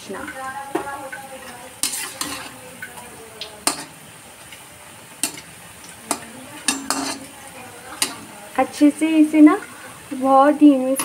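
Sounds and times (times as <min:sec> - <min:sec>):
food frying in hot oil: 0:00.0 - 0:11.0
utensil clinking against pan: 0:06.1 - 0:08.2.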